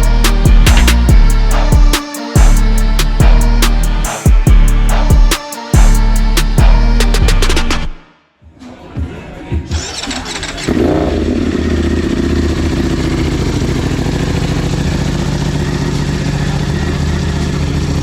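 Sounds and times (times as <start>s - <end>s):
motorcycle engine starting: 9.7s - 18.0s
motorcycle engine idling loudly: 9.8s - 18.0s.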